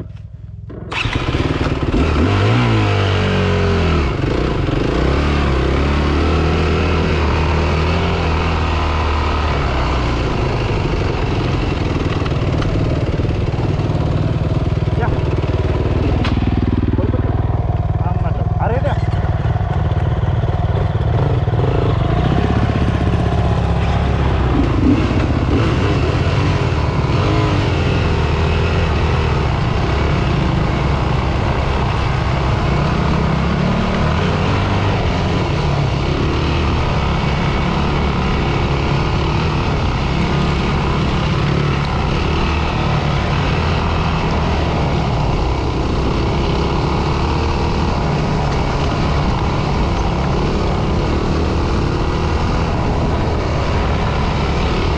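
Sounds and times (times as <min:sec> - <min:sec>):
dirt bike engine running: 0:00.0 - 0:54.9.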